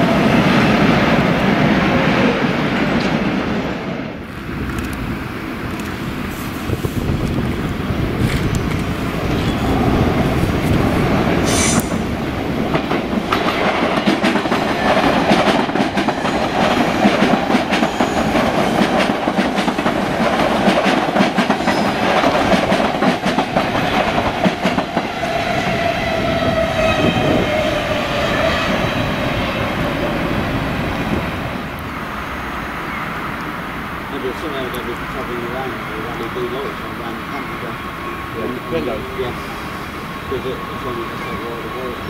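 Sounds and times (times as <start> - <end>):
train wheels clattering over rail joints: 11.4 - 25.2.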